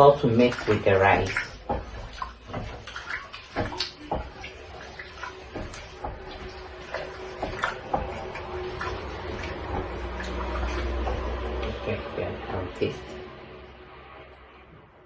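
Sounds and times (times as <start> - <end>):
utensil scraping a pot: 0.0 - 11.8
water sloshing: 0.0 - 15.0.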